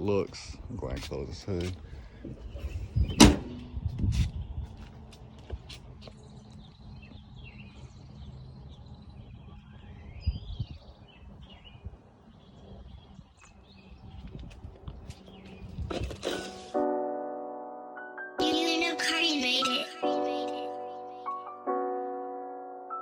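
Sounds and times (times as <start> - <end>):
birds chirping: 0.0 - 16.2.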